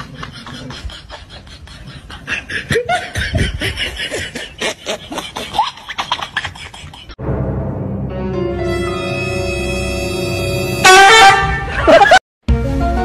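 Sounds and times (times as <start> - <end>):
person laughing: 0.0 - 7.2, 11.6 - 12.2.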